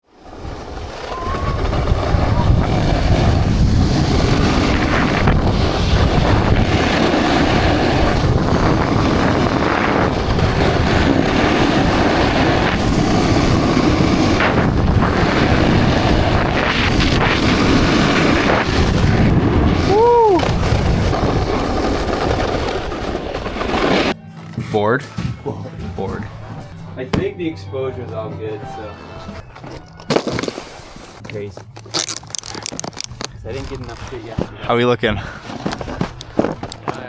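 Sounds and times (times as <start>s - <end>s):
wind buffeting microphone: 0.4s - 22.2s.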